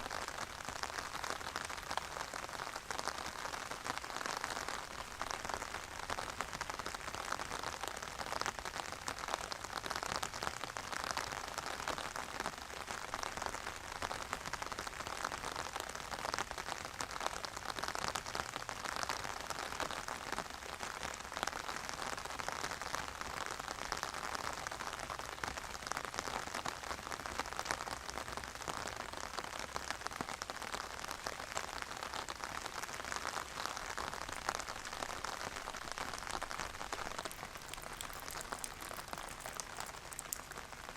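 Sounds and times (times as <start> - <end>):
steady rain falling: 0.0 - 40.9
raindrop hits: 36.9 - 40.8.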